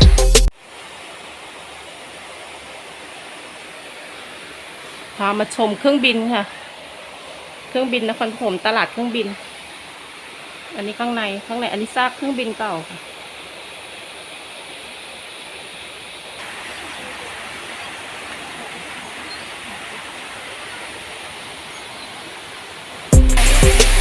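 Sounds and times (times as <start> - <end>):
music with steady beat: 0.0 - 0.5, 23.2 - 24.0
outdoor background hiss: 0.5 - 24.0.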